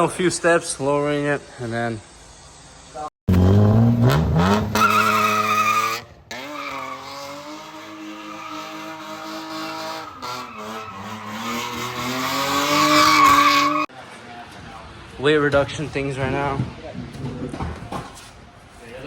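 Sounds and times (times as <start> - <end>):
car engine revving: 3.3 - 13.9
tyres squealing: 4.7 - 13.9.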